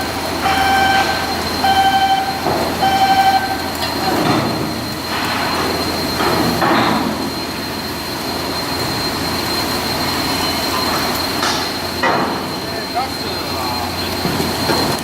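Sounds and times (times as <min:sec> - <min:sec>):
industrial machinery whine: 0:00.0 - 0:15.0.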